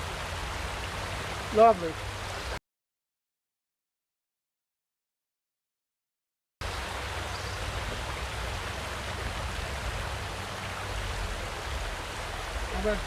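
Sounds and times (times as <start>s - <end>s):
creek water running over rocks: 0.0s - 2.6s, 6.6s - 13.0s.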